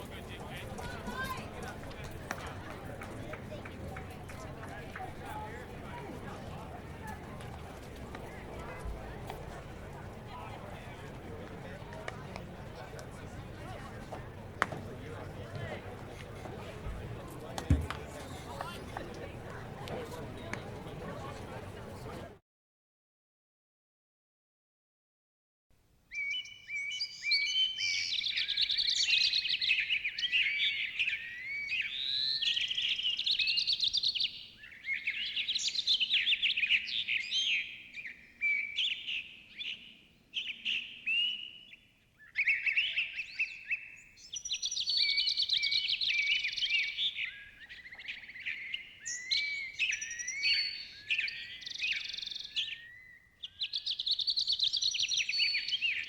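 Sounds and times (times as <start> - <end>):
birds chirping and singing: 26.2 - 56.0.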